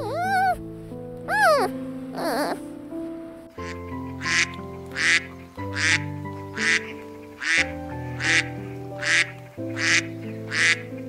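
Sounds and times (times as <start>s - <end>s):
music of slow held chords: 0.0s - 11.0s
duck quacking: 3.6s - 11.0s.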